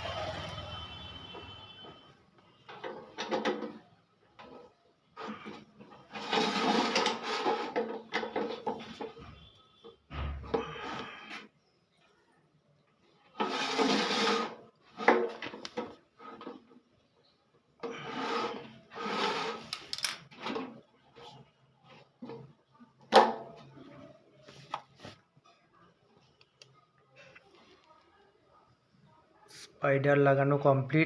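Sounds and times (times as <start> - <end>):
scraping and rubbing on metal drum: 4.4 - 9.4, 13.4 - 15.4, 17.9 - 19.7.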